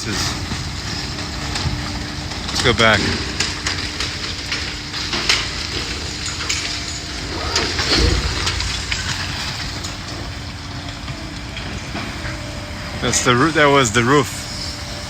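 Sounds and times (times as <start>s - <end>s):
debris cracking and clattering: 0.0s - 12.3s
demolition machine engine running: 0.0s - 15.0s.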